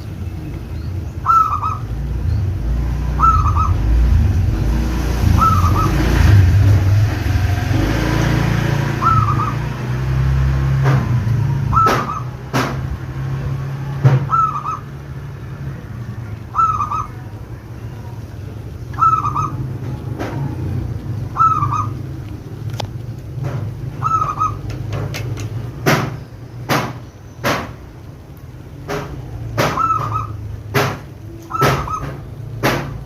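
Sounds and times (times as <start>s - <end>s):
dove cooing: 1.2s - 2.0s, 3.1s - 4.2s, 5.2s - 6.3s, 8.8s - 9.8s, 11.6s - 12.4s, 14.2s - 15.0s, 16.5s - 17.4s, 18.9s - 22.2s, 23.9s - 24.9s, 29.6s - 30.4s, 31.3s - 32.3s.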